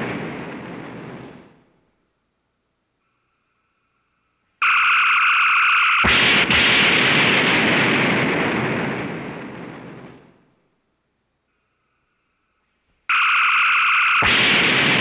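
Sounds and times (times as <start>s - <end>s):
explosion: 0.0s - 1.7s, 6.1s - 10.4s, 14.2s - 15.0s
faint steady tone: 0.0s - 6.4s, 8.7s - 15.0s.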